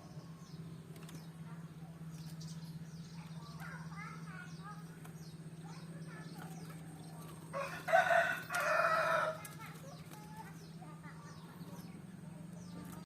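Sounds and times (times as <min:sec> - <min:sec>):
small birds chirping: 0:00.0 - 0:13.0
rooster crowing: 0:07.5 - 0:09.4.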